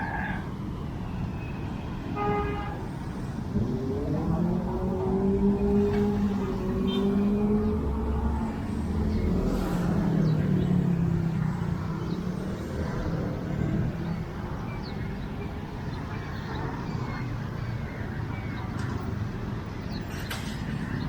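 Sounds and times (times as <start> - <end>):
road noise: 0.0 - 21.0.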